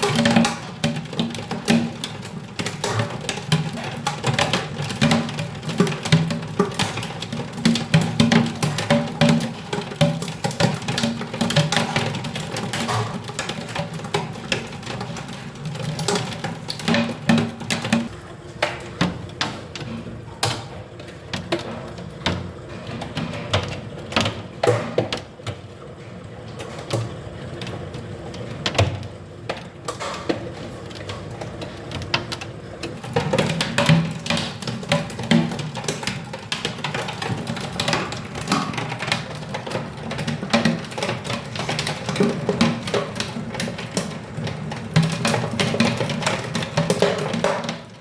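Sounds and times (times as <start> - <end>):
hailstones striking hard surface: 30.9 - 48.0.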